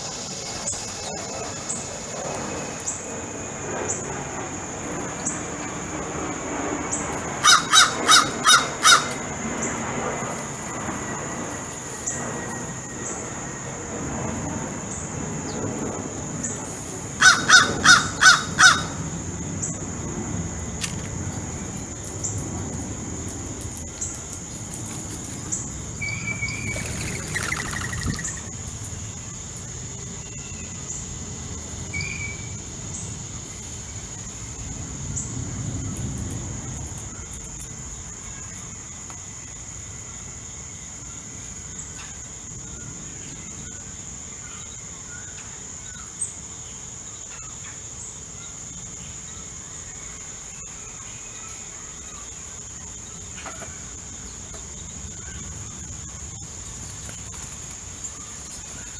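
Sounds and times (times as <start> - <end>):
high-pitched insect buzz: 0.0 - 4.6, 23.8 - 28.8
crow cawing: 7.4 - 9.4, 17.1 - 19.2
short bird chirps: 26.0 - 28.5.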